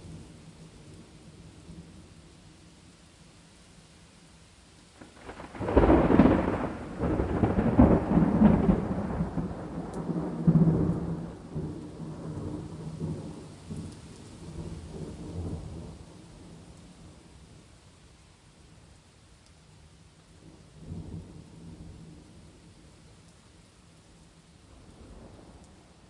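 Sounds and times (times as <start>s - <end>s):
rain hissing: 0.0s - 26.0s
thunderclap rumbling: 5.1s - 13.4s.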